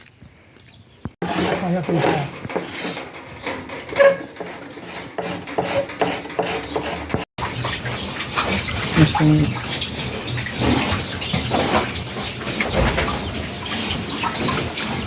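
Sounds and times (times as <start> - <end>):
splashing running water: 7.4 - 15.0.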